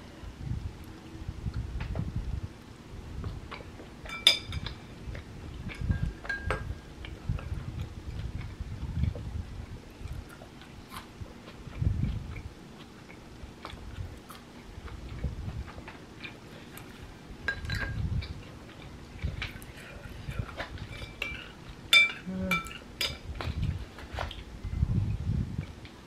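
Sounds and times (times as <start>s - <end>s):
spoon clinking on ceramic bowl: 4.1s - 4.7s, 21.0s - 23.2s
chewing rice cakes: 7.0s - 24.5s.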